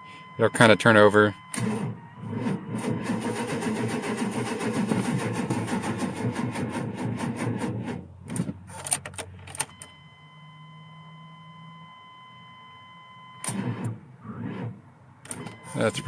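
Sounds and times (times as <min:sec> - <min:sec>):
steady high beep: 0:00.0 - 0:02.3, 0:15.5 - 0:16.0
engine cranking slowly without firing: 0:01.5 - 0:08.0.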